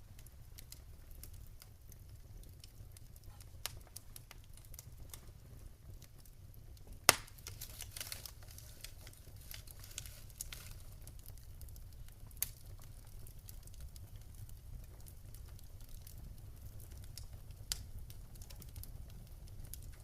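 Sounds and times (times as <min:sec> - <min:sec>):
wood fire crackling: 0:00.0 - 0:20.0
loud pop from fire: 0:06.9 - 0:10.8.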